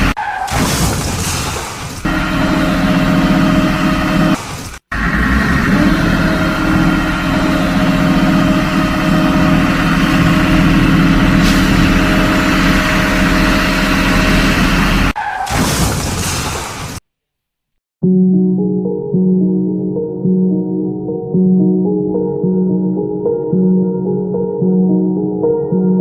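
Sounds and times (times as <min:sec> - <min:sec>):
heavy vehicle engine running: 0:02.1 - 0:15.2.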